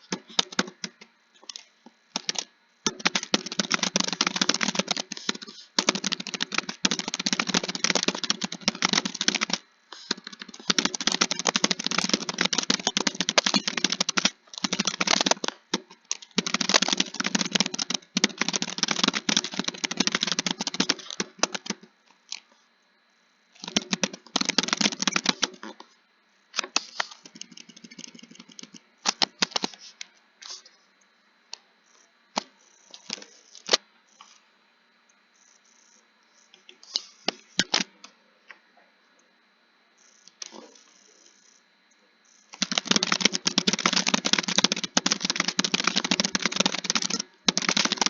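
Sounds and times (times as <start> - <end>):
computer keyboard typing: 0.0 - 1.6, 2.2 - 21.9, 23.6 - 25.7, 26.6 - 29.8, 42.5 - 48.0.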